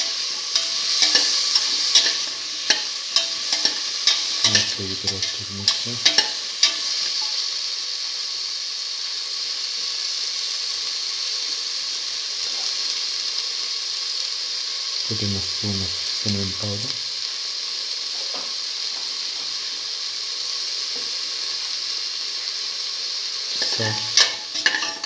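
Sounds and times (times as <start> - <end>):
food sizzling in oil: 0.0 - 25.0
spatula scraping metal pot: 23.6 - 25.0.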